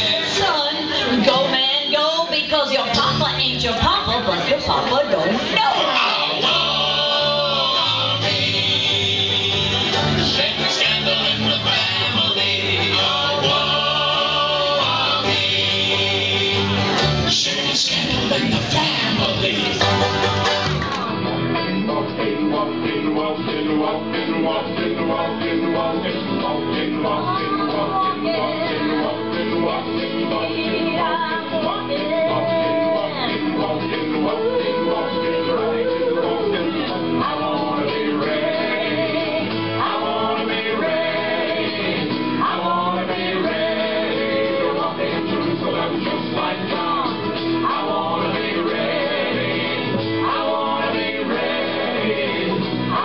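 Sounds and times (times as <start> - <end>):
people singing: 0.0 - 2.0, 5.2 - 53.0
acoustic band playing live: 0.0 - 53.0.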